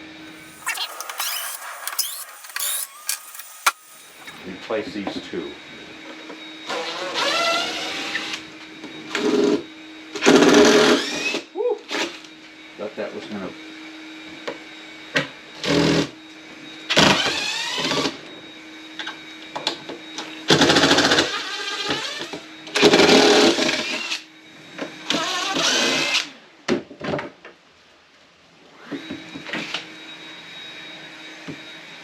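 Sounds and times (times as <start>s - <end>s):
power drill driving screws into wood: 0.3s - 4.4s
short clicks: 0.3s - 4.4s.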